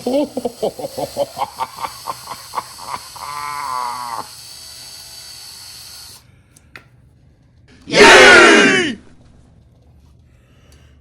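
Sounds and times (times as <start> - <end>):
drill chattering and whining: 0.0 - 6.2.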